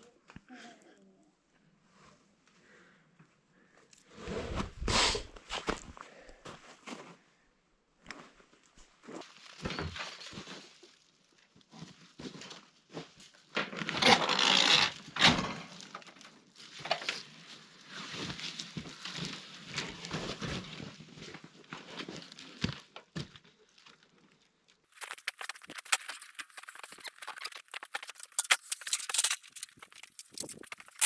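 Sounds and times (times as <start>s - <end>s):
scraping shuffle: 24.9s - 31.0s
footsteps crunching in snow: 25.0s - 31.0s.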